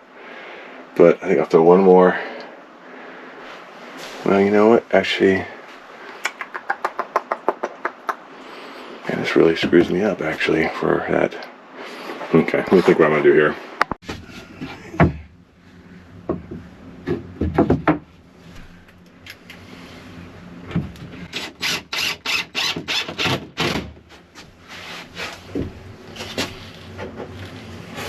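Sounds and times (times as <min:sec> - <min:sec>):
knocks on wooden boards: 0:16.3 - 0:18.1.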